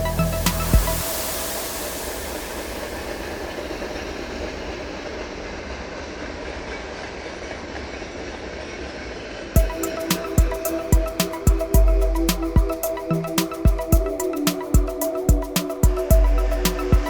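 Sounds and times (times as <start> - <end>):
train running along rails: 1.1 - 10.0.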